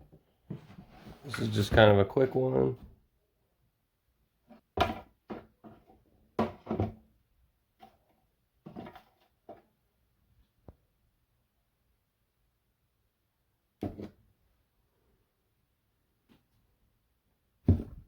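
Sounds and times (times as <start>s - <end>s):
knocks and clatters of handling: 4.5s - 7.1s, 7.8s - 9.7s.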